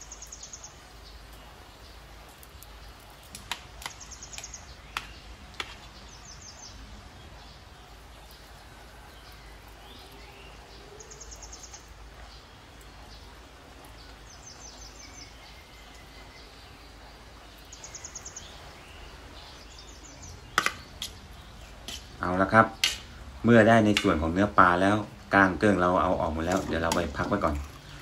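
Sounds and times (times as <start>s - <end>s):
faint bird chirps: 6.0s - 21.8s.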